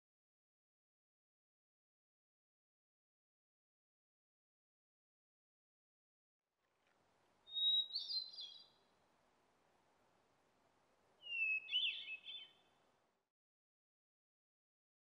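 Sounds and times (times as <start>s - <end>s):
songbird singing: 6.6s - 9.1s, 11.0s - 13.0s
faint background hiss: 6.6s - 13.3s.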